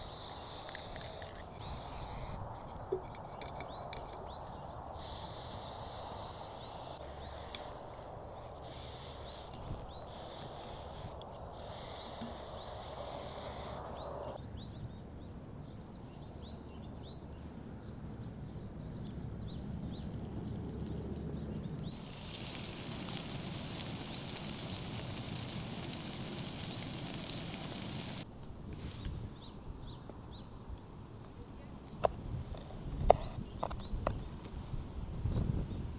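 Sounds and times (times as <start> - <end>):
steady hiss and rustle: 0.0 - 14.4, 21.9 - 29.1.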